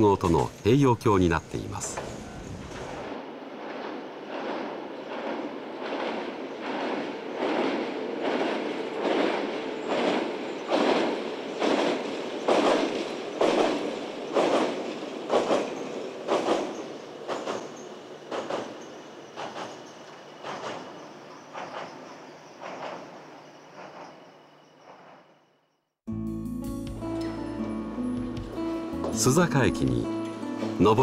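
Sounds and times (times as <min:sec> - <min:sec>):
train wheels clattering on bridge: 0:01.7 - 0:25.3.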